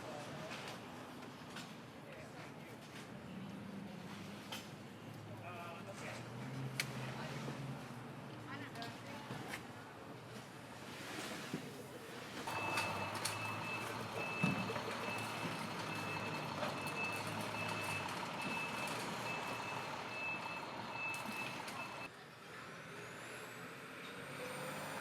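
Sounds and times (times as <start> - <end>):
engine idling: 12.5 - 22.1
reversing alarm beeping: 12.5 - 22.1.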